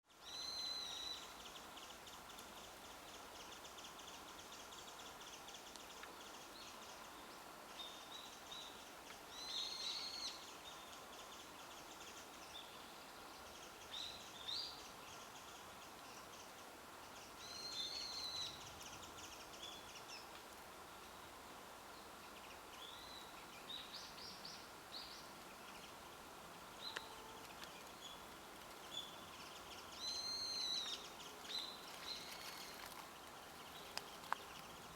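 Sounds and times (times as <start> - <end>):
faint background hiss: 0.0 - 34.9
bird singing high song phrase: 28.8 - 32.7.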